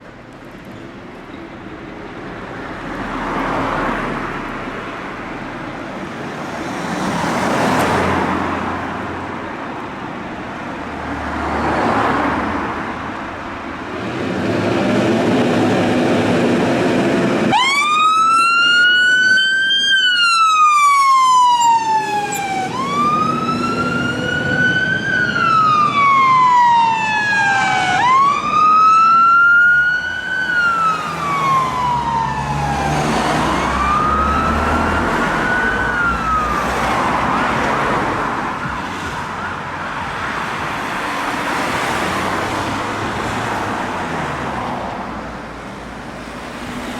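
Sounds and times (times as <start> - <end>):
road traffic passing: 0.0 - 46.9
fire engine siren wailing: 15.8 - 43.9.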